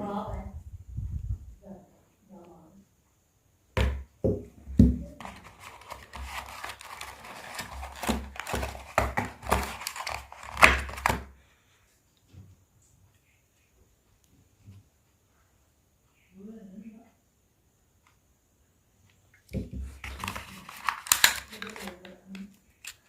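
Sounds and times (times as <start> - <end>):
plastic wrap crinkling and tearing: 5.2 - 11.3, 19.9 - 23.0.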